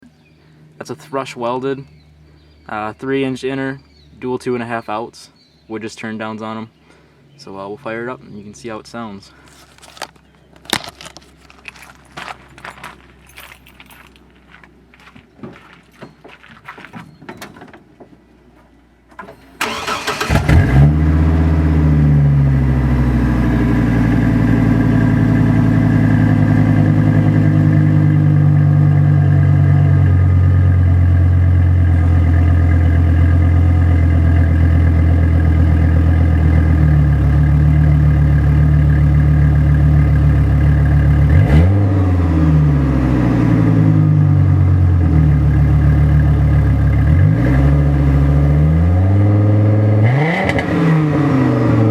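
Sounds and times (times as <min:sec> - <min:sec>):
car engine idling: 0:17.8 - 0:48.5
car engine starting: 0:19.0 - 0:51.9
engine revving: 0:19.6 - 0:31.0, 0:35.9 - 0:51.9.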